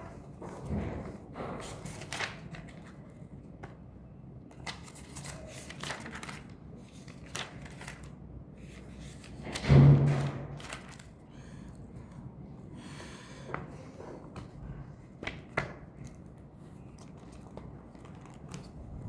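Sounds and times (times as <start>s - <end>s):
paper rustling and scratching: 0.0s - 3.8s, 4.5s - 11.4s, 15.3s - 19.0s.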